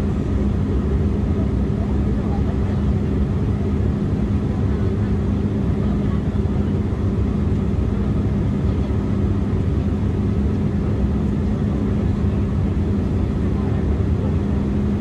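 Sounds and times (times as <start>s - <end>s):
jet engines and airflow drone: 0.0s - 15.0s.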